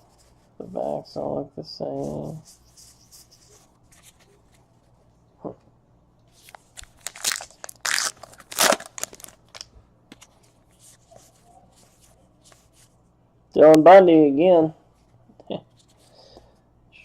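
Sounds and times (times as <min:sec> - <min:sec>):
foil wrapper crinkling and tearing: 0:06.4 - 0:09.7.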